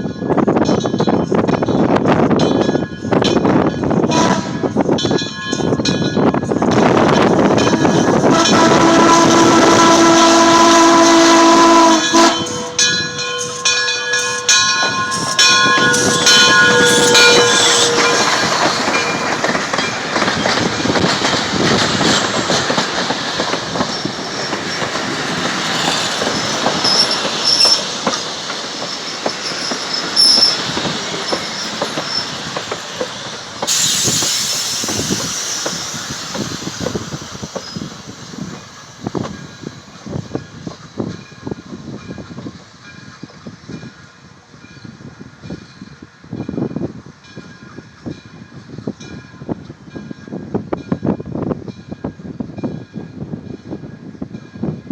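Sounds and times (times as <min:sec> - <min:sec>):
train wheels clacking on rails: 0:00.0 - 0:54.9
steam locomotive chime whistle: 0:04.0 - 0:43.3
steam hiss: 0:06.8 - 0:42.8
metallic bell ringing: 0:12.3 - 0:20.6.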